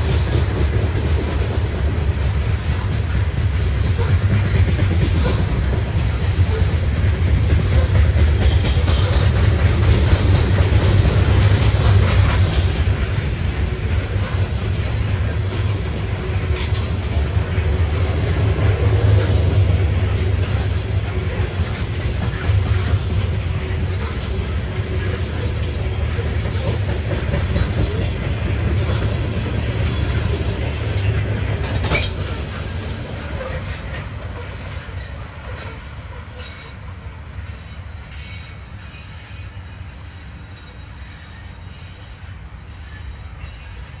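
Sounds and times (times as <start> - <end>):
freight train rolling past: 0.0 - 44.0.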